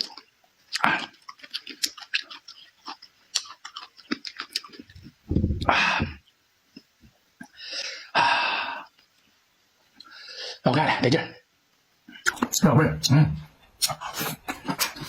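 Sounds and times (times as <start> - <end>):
wet chewing: 0.0 - 5.7
rough mouth noise: 4.8 - 6.2.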